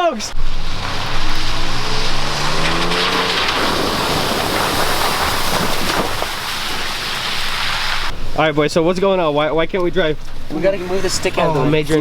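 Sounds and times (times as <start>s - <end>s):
vehicle engine revving: 0.3s - 8.1s.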